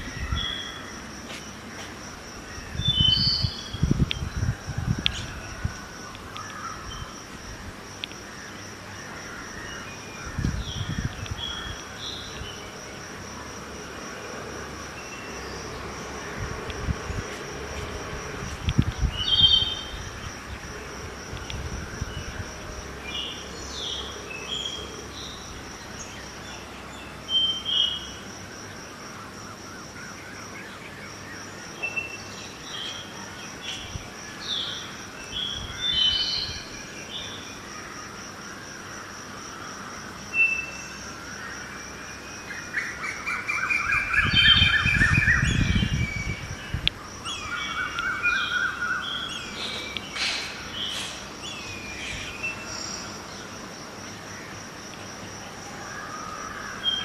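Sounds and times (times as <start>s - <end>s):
distant traffic hum: 0.0s - 57.0s
high insect trill: 0.0s - 57.0s
wind rumble on microphone: 1.6s - 8.2s, 10.1s - 23.6s, 33.7s - 34.2s, 35.3s - 36.8s, 43.8s - 48.0s.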